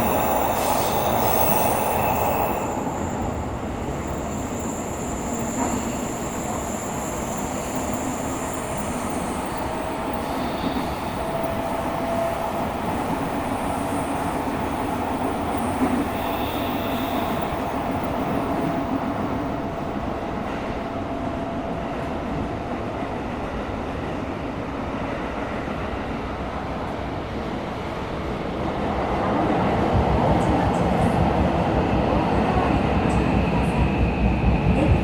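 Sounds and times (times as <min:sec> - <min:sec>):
thin steady whine: 0:00.0 - 0:11.1
subway train wheels rumbling: 0:00.0 - 0:35.0.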